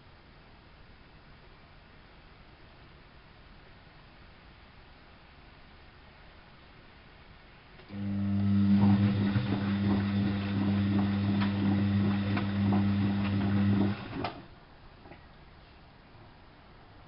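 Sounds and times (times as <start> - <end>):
drain pump humming: 7.8 - 14.5
water gurgling through pump: 7.9 - 14.5.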